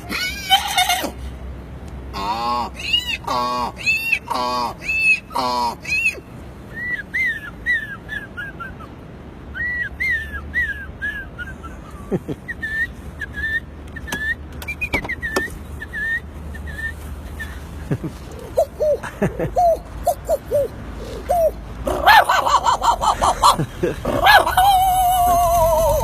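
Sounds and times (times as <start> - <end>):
man whistling birdsong: 6.7 - 8.9, 9.5 - 11.7, 12.5 - 17.6.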